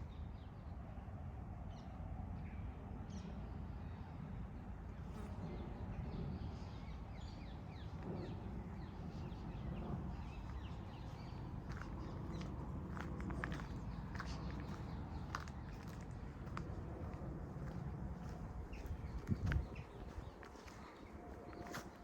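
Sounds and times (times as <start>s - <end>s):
low background rumble: 5.4s - 21.7s
small birds chirping: 6.1s - 22.0s.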